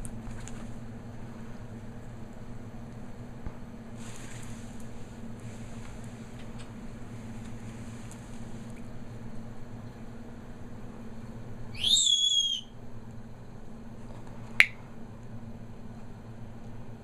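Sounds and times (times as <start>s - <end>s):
steady low hum: 0.0s - 17.0s
parrot whistled call: 11.7s - 12.8s.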